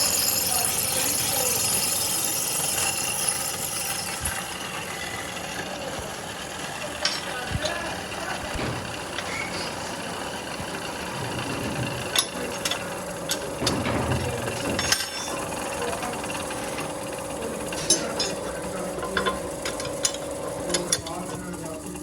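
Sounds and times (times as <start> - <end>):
steady hum: 0.0 - 22.0
workshop machinery running: 0.0 - 22.0
sharp metallic clicks and knocks: 10.7 - 22.0.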